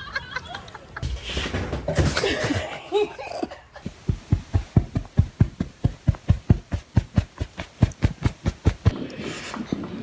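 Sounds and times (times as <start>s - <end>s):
rapid even thumping: 3.8s - 9.0s.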